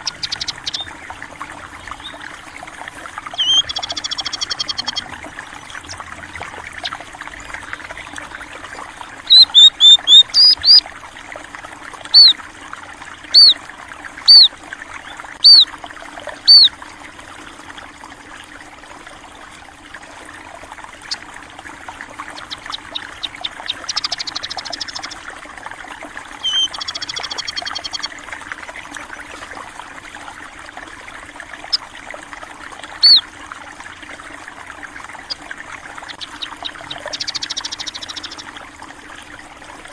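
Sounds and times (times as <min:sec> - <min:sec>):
sparrows chirping: 0:00.0 - 0:01.0, 0:03.2 - 0:06.0, 0:09.3 - 0:10.8, 0:12.1 - 0:12.4, 0:13.4 - 0:13.6, 0:14.3 - 0:14.5, 0:15.4 - 0:15.7, 0:16.5 - 0:16.7, 0:22.2 - 0:25.2, 0:26.4 - 0:28.1, 0:33.0 - 0:33.2, 0:36.0 - 0:38.5
buzzy bird trills: 0:00.0 - 0:08.5, 0:09.2 - 0:10.9, 0:12.1 - 0:12.4, 0:13.3 - 0:13.6, 0:14.2 - 0:14.5, 0:15.1 - 0:15.7, 0:16.4 - 0:16.7, 0:22.1 - 0:25.2, 0:26.4 - 0:28.2, 0:33.0 - 0:33.3, 0:35.1 - 0:38.6
water trickling: 0:00.0 - 0:39.9.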